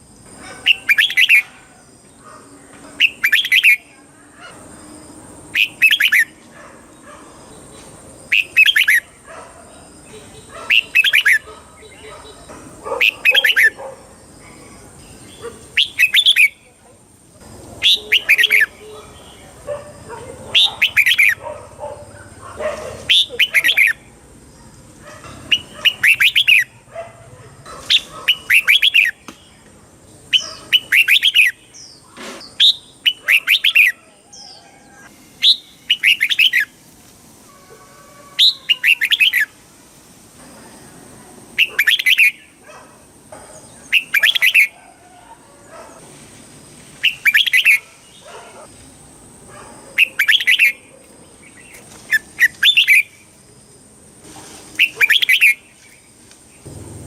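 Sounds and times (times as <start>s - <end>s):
bulbul singing warbling phrases: 0.6s - 1.6s, 2.9s - 4.2s, 5.5s - 6.4s, 8.3s - 9.1s, 9.9s - 13.8s, 17.8s - 19.7s, 20.4s - 21.4s, 23.1s - 24.7s, 25.5s - 26.9s.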